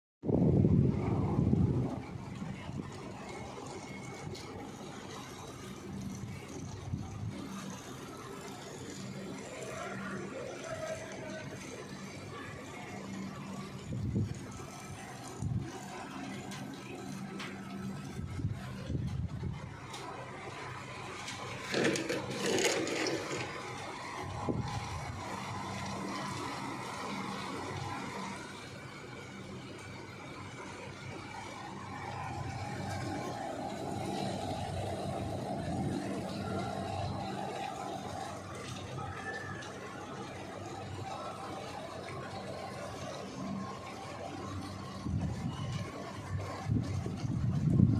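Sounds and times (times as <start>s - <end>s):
steady low rumble: 0.2s - 9.5s, 12.3s - 21.4s, 40.6s - 47.9s
rain falling: 19.7s - 47.6s.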